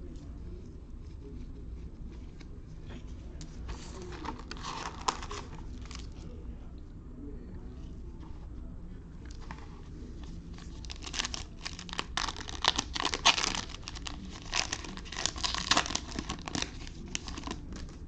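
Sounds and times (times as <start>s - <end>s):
plastic wrapper tearing and crinkling: 4.0s - 6.2s, 10.5s - 18.0s.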